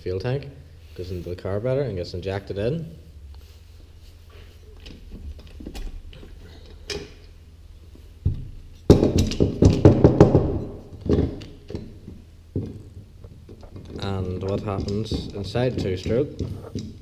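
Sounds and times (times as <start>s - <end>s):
engine parts clattering: 4.2s - 17.0s
irregular knocking and rattling: 4.3s - 17.0s.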